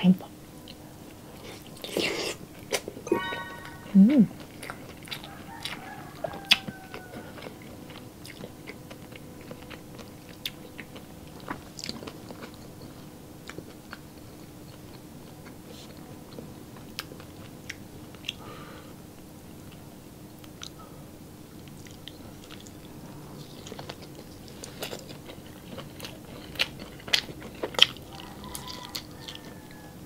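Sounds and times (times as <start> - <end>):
faint steady hum: 0.0 - 30.0
person chewing food: 4.6 - 18.5, 21.6 - 29.8.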